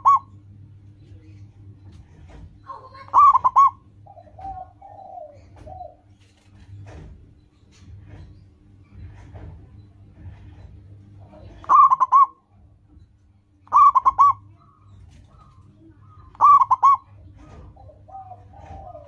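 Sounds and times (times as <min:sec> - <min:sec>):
dove cooing: 0:00.0 - 0:00.4, 0:02.1 - 0:06.2, 0:11.2 - 0:12.5, 0:13.6 - 0:19.0.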